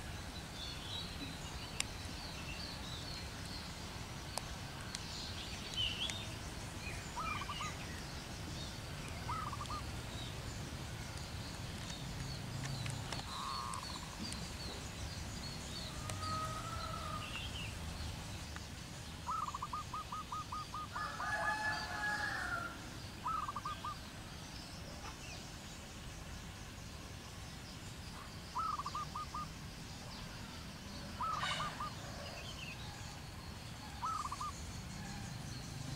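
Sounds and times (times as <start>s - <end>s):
birds calling: 0.6s - 24.2s, 28.2s - 35.9s.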